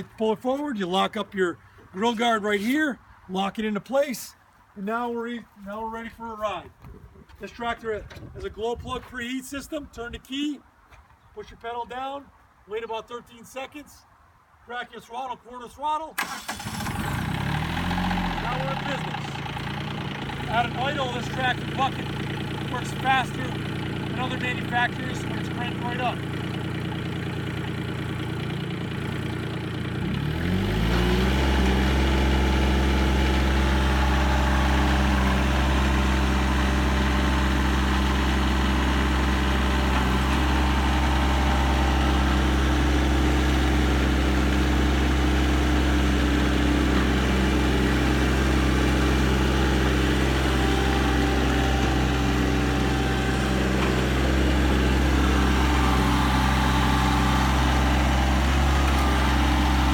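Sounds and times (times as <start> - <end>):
tractor diesel engine revving: 16.2 - 59.9.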